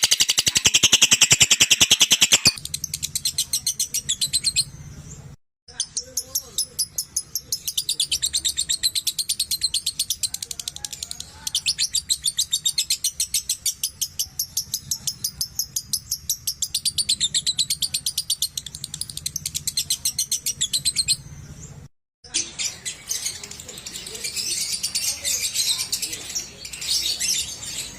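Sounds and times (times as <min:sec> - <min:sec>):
lovebird chattering trill: 0:00.0 - 0:04.8, 0:05.7 - 0:21.4.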